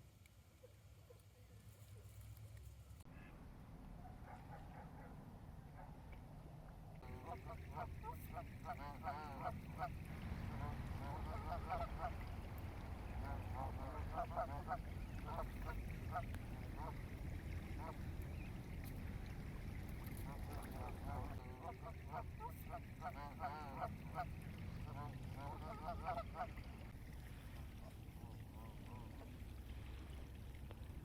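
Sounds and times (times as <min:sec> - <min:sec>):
low rumble of wind or water: 0:00.0 - 0:31.0
waterfowl calling: 0:07.0 - 0:30.2.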